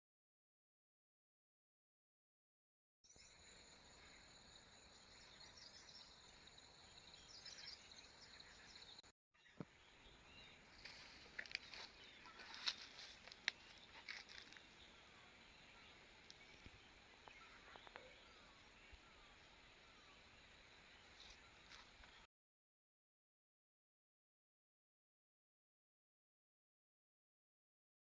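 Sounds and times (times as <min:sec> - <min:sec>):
birds chirping: 0:03.1 - 0:22.3
insect hum: 0:03.1 - 0:22.3.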